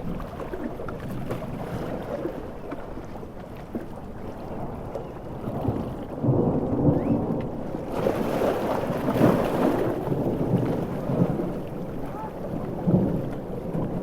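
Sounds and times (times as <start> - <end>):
heavy rain: 4.6 - 14.0
thunder rumbling: 4.7 - 14.0.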